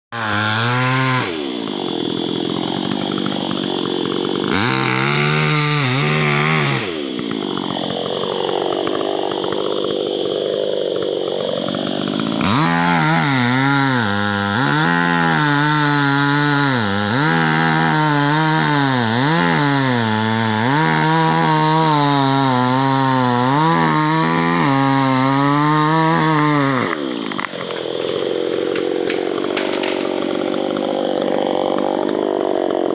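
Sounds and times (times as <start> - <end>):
chainsaw cutting tree: 0.1 - 32.9.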